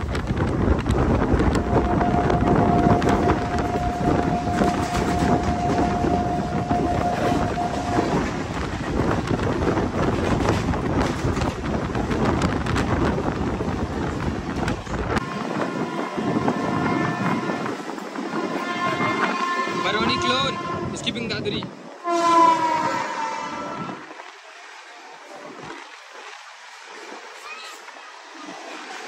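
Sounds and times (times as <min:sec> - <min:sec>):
train wheel clatter: 0:00.0 - 0:20.4
passing train: 0:00.0 - 0:29.0
rushing wind: 0:00.0 - 0:29.0
steady train horn: 0:01.4 - 0:08.7, 0:15.2 - 0:24.1.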